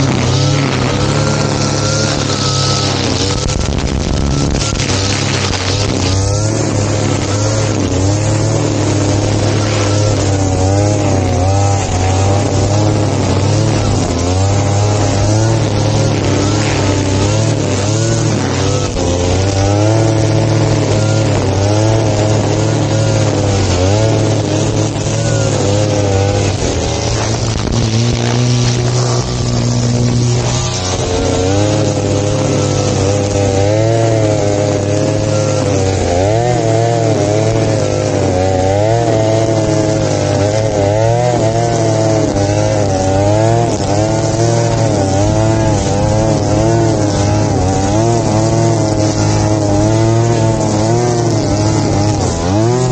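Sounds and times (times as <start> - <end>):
grass cutter engine running: 0.0 - 52.9.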